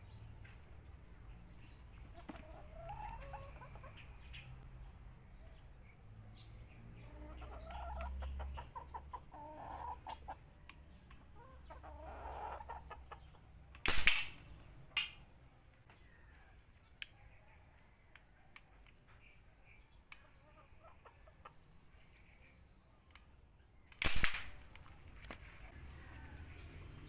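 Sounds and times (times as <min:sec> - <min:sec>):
chickens clucking: 0:00.0 - 0:05.9, 0:06.6 - 0:13.8, 0:15.8 - 0:23.0
pipe gun shot: 0:13.8 - 0:15.1, 0:24.0 - 0:24.7.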